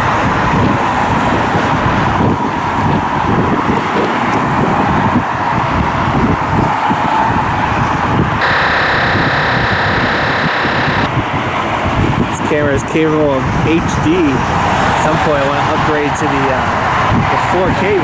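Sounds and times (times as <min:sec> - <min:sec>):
wind buffeting microphone: 0:00.0 - 0:08.4, 0:10.9 - 0:18.0
multi-pitched hum: 0:08.4 - 0:11.1.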